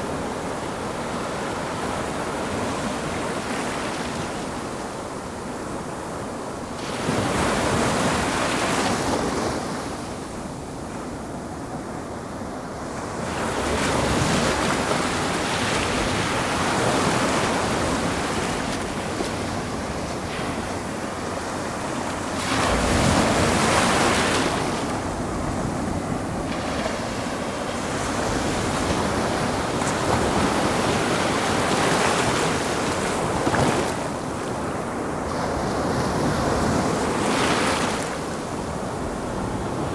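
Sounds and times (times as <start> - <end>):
ocean waves breaking on shore: 11.9 - 39.9.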